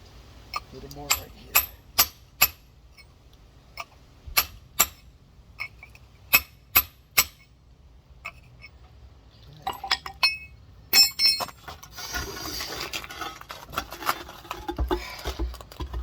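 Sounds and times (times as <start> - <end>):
rock hammer clinking on geode: 9.6 - 11.6.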